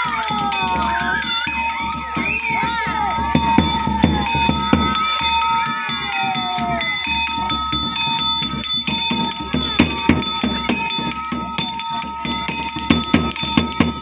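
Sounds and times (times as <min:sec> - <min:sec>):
gong-chimes struck rhythmically: 0:00.0 - 0:14.0
low drum beats: 0:01.8 - 0:05.4, 0:07.4 - 0:14.0.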